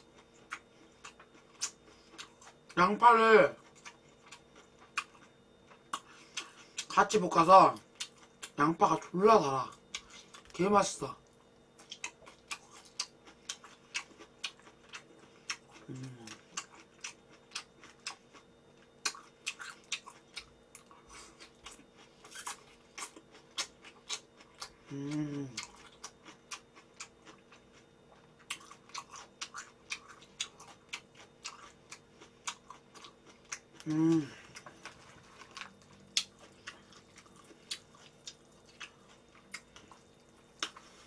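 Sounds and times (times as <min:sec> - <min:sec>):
person chewing food: 0:00.0 - 0:10.6, 0:11.2 - 0:41.0
person humming: 0:15.9 - 0:16.3, 0:24.9 - 0:25.6, 0:33.8 - 0:34.5.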